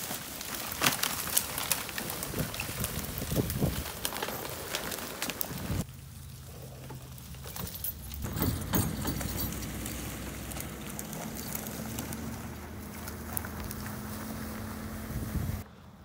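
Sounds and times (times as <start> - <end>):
clicks and knocks: 7.6 - 9.8.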